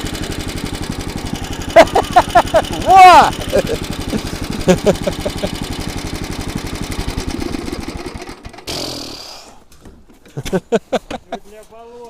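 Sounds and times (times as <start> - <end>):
small petrol engine running: 0.0 - 9.5.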